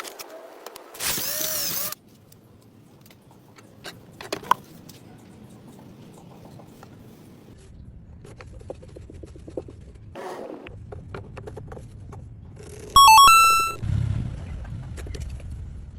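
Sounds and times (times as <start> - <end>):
electronic chime: 13.0 - 13.8.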